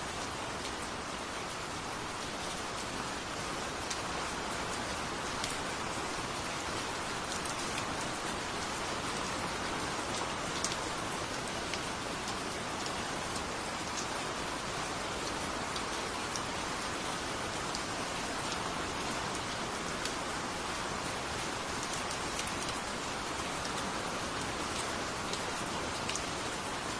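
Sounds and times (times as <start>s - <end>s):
steady rain falling: 0.0s - 26.9s.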